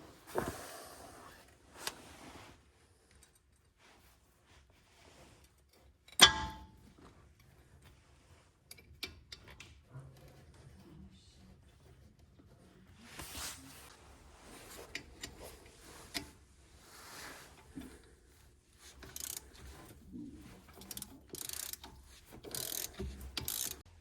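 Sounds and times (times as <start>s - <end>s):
hand tools scraping: 6.7s - 23.9s
hand tools clicking and rattling: 18.8s - 23.9s.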